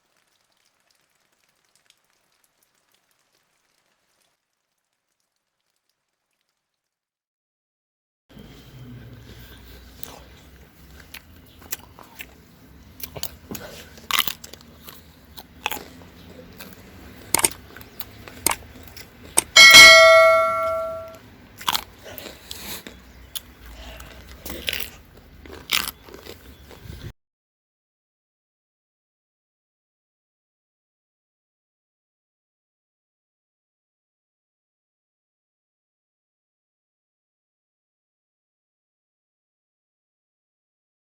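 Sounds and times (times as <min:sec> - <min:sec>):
almonds being chewed: 0:09.3 - 0:19.6, 0:21.6 - 0:27.1
bell-like ring: 0:19.6 - 0:21.2.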